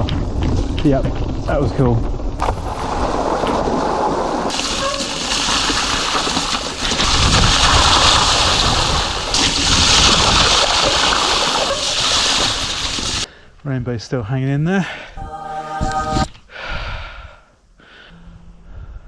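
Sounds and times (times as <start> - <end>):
bike tyres splashing through water: 2.4 - 13.3.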